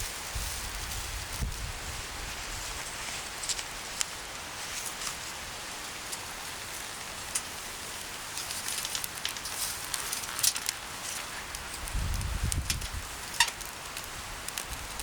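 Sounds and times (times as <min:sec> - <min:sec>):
wood fire crackling: 0:00.0 - 0:15.0
fire pops and snaps: 0:06.0 - 0:15.0.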